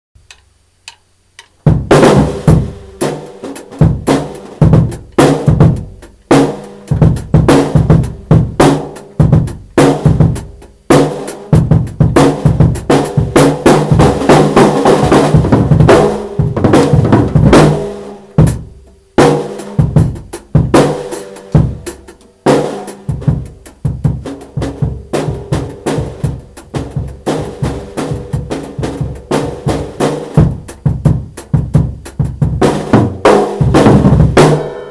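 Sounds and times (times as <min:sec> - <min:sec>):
bass drum hits: 0:01.7 - 0:03.0, 0:11.6 - 0:21.0
snare drum hits: 0:01.7 - 0:18.6.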